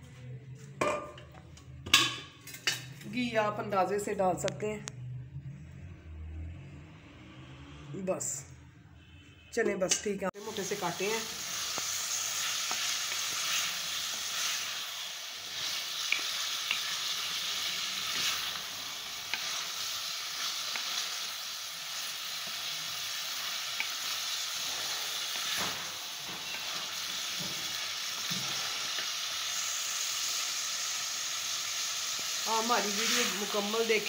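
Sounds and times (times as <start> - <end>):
potatoes and onions sizzling: 10.4 - 34.0.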